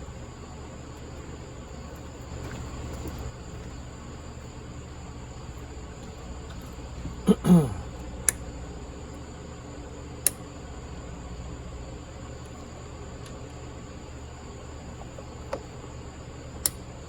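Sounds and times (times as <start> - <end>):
steady low hum: 0.0 - 17.0
grunt-like falling sound: 7.2 - 7.9.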